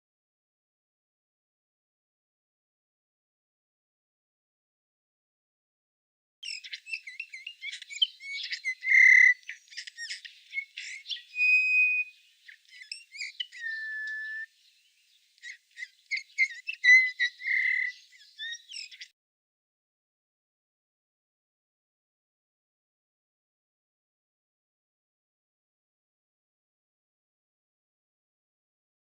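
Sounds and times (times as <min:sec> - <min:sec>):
songbird singing: 0:06.4 - 0:19.2.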